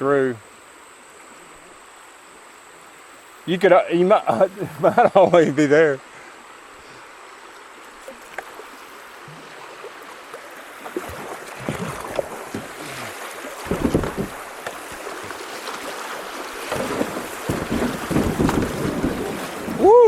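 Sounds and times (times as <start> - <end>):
creek water rushing: 0.0 - 20.0
water splashes: 6.5 - 20.0
wind buffeting microphone: 13.6 - 14.4, 16.7 - 20.0.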